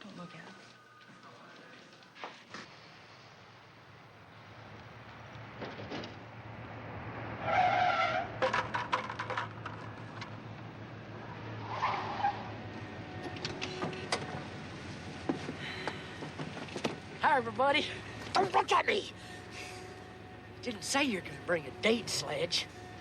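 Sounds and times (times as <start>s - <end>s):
car driving: 2.9s - 23.0s
tires squealing: 7.2s - 10.5s, 11.1s - 14.2s.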